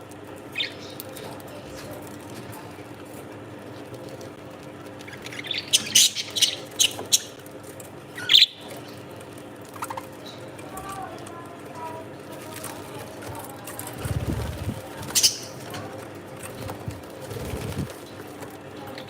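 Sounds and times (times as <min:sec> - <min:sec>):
parrot chirping and squawking: 0:05.0 - 0:07.4, 0:08.1 - 0:08.7, 0:15.1 - 0:15.6.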